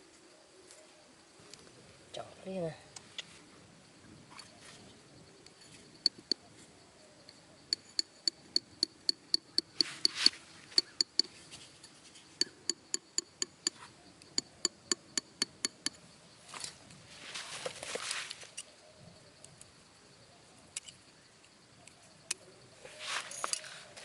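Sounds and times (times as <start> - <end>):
tool striking hard surface: 7.7 - 11.4, 12.4 - 13.8, 14.4 - 16.0
scraping rustle: 16.5 - 18.6, 22.8 - 24.0.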